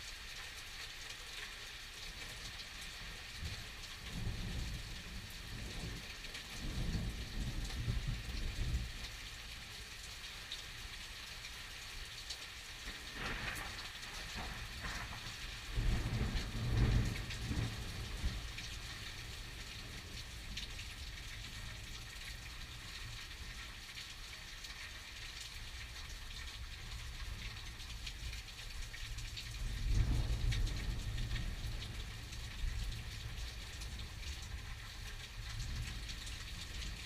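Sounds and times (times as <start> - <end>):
steady rain hissing: 0.0 - 37.0
thunder rumbling: 13.1 - 18.6.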